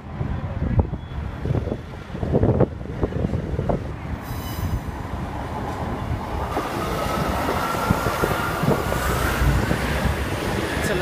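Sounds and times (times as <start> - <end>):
train rumbling on rails: 0.0 - 11.0
high-pitched wheel squeal: 4.3 - 4.8.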